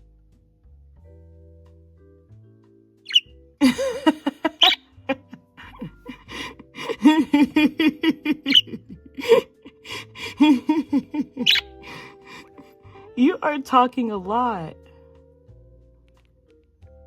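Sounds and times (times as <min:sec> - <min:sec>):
parrot chattering: 0:03.1 - 0:12.6.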